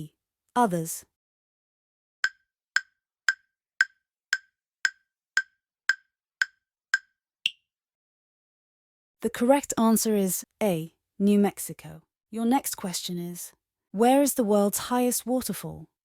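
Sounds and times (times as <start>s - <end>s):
wood-block-like ticks: 2.2s - 7.6s.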